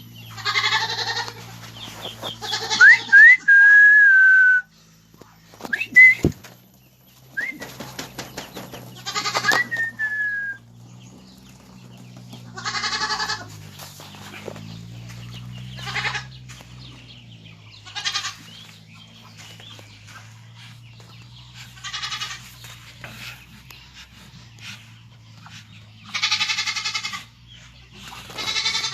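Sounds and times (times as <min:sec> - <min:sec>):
steady low hum: 0:00.0 - 0:28.8
farm animal calls: 0:00.0 - 0:28.9
short falling whistles: 0:05.6 - 0:06.5, 0:09.4 - 0:10.6.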